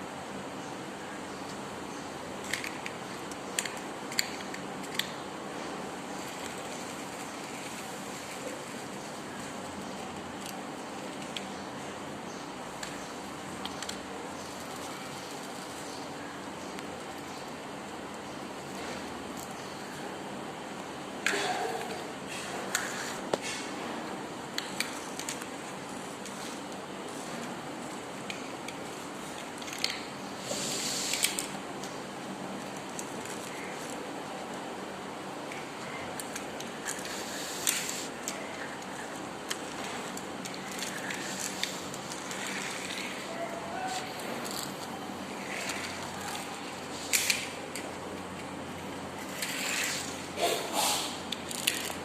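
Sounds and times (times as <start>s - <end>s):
steady hiss: 22.1s - 51.6s.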